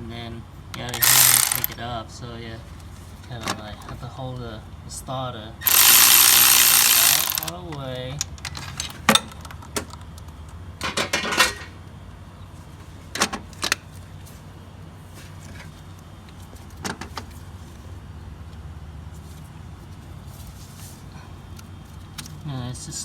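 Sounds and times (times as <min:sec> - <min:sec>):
ratchet clicking: 0:00.8 - 0:01.8, 0:05.6 - 0:07.6.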